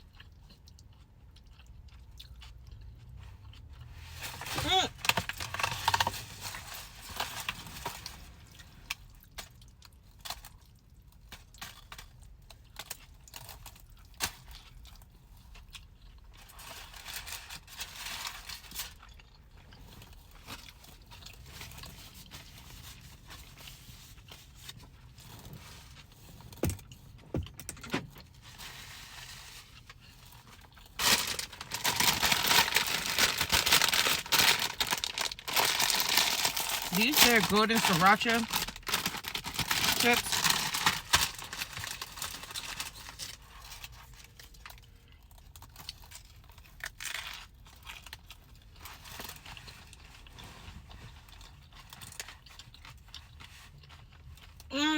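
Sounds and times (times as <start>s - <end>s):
clicks and rustles of food handling: 0.0s - 54.7s
chip bag crinkling: 4.1s - 15.0s, 28.2s - 54.7s.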